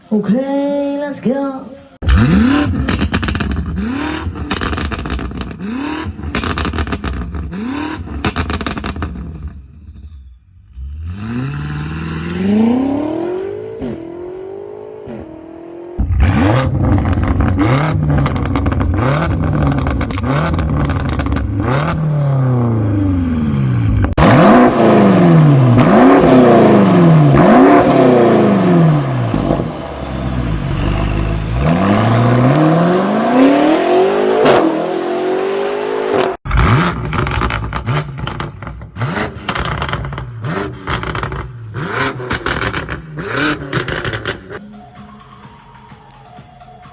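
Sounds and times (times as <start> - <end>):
exhaust crackling pops: 2.0 - 10.1, 16.0 - 22.0, 36.5 - 44.6
car engines revving: 2.0 - 44.6.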